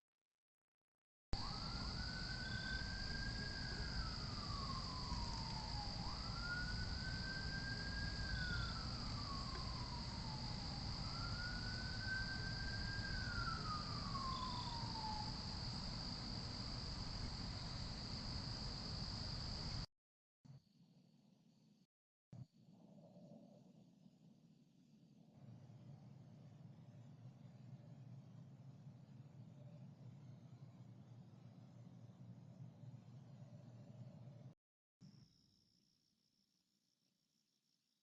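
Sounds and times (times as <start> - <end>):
siren wailing: 1.4 - 15.8
night insects trilling: 1.4 - 19.9.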